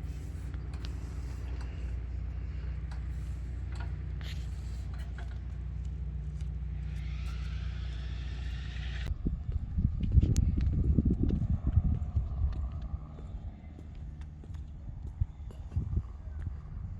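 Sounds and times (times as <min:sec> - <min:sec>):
engine humming: 0:00.0 - 0:16.9.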